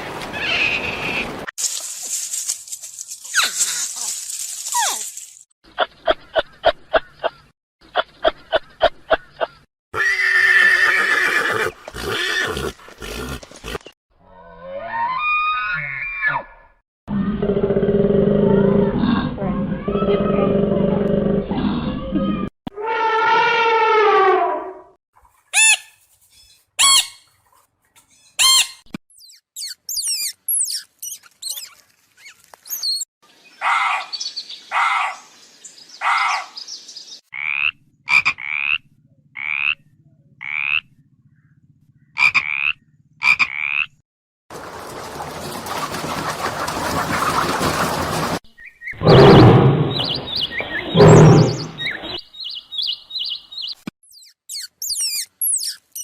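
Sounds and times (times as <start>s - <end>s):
animal chirps: 28.2s - 33.0s, 48.6s - 56.0s.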